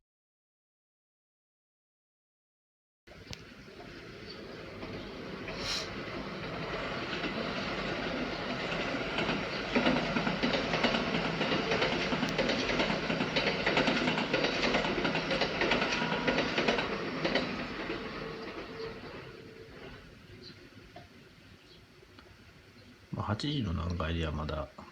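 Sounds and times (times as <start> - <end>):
train wheels clacking over rail joints: 3.8 - 20.1.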